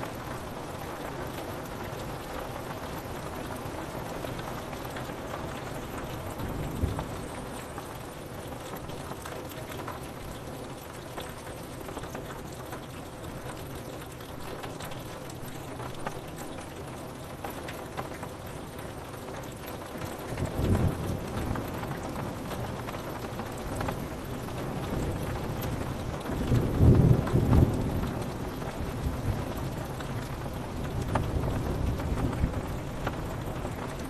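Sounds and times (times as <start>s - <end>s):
rain on window glass: 0.0s - 34.0s
low rumble of thunder: 4.8s - 9.9s, 20.2s - 34.0s.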